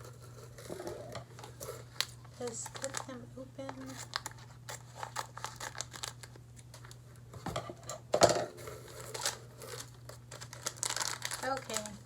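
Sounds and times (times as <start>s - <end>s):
plastic packaging crinkling: 0.6s - 7.0s, 8.7s - 12.0s.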